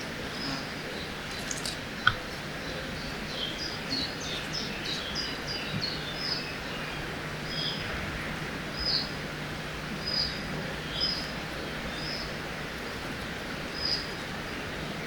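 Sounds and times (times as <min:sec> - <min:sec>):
flowing water hiss: 0:00.4 - 0:02.6
bird chirping: 0:00.4 - 0:06.9.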